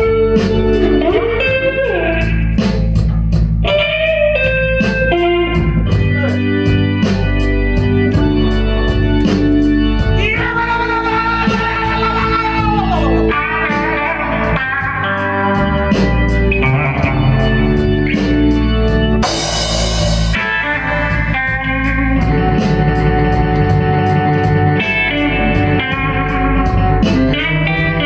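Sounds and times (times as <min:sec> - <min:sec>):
blues-rock band playing: 0:00.0 - 0:28.0
electric guitar note bending: 0:10.1 - 0:17.8, 0:19.2 - 0:23.6
cymbal crash: 0:19.2 - 0:21.2.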